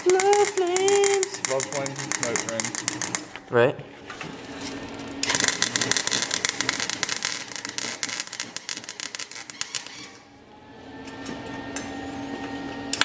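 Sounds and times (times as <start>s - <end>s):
wire-feed welder crackling: 0.0s - 3.4s, 4.5s - 10.3s.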